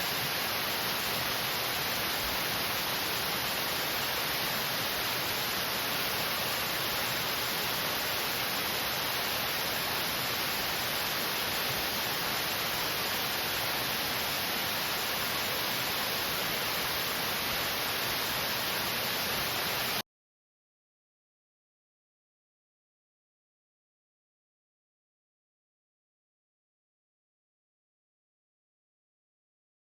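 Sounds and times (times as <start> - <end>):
waterfall rushing over rock: 0.0 - 20.0.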